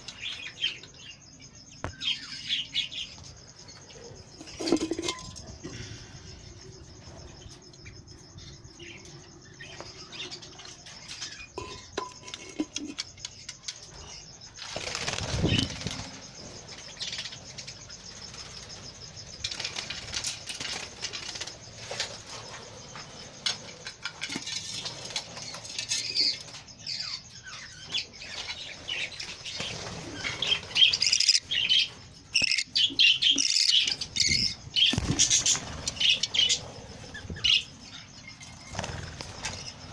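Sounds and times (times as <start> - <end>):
budgerigars fluttering wings: 14.6 - 16.3, 29.0 - 31.4, 34.2 - 37.6, 38.4 - 39.9.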